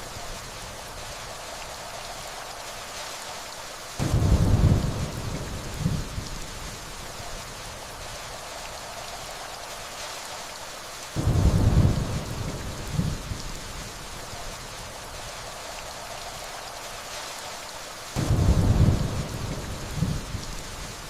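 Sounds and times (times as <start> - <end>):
steady rainfall: 0.0 - 21.0
distant thunder rolling: 4.0 - 6.4, 11.2 - 13.6, 18.2 - 20.5.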